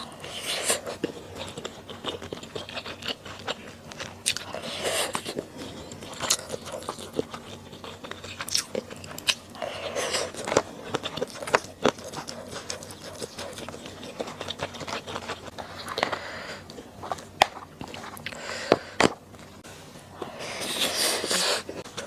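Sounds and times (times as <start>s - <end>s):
chewing with wet mouth clicks: 0.8s - 9.6s, 10.3s - 18.4s.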